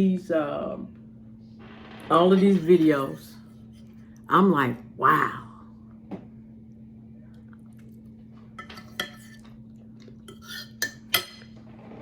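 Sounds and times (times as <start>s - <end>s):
steady low hum: 0.0s - 12.0s
fork scraping a plate: 8.6s - 9.6s, 10.2s - 11.6s.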